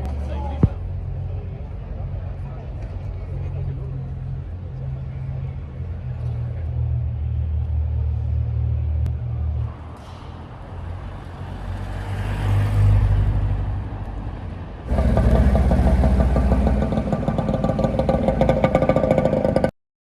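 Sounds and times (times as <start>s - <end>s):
car engine passing: 9.6s - 14.1s, 14.9s - 19.7s
car engine running with rapid pulse: 14.9s - 19.6s.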